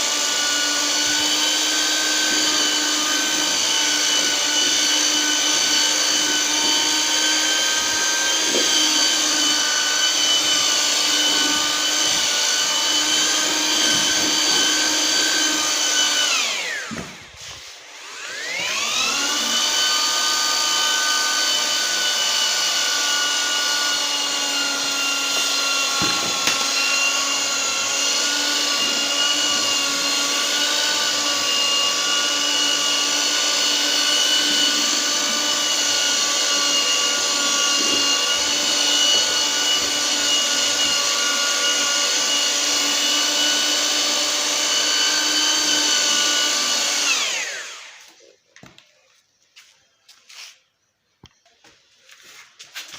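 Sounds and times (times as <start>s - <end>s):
mortar mixer motor running: 0.0s - 48.3s.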